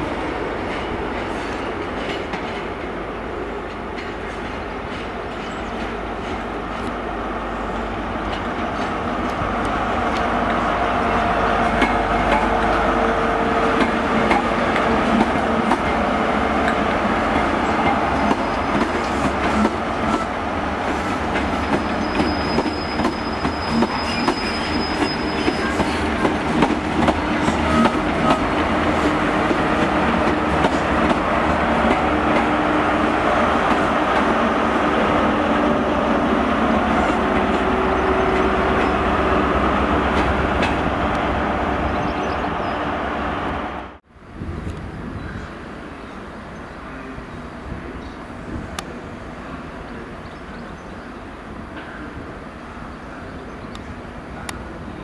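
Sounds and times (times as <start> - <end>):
diesel train engines: 0.0 - 55.0
high wheel squeal: 21.6 - 26.3.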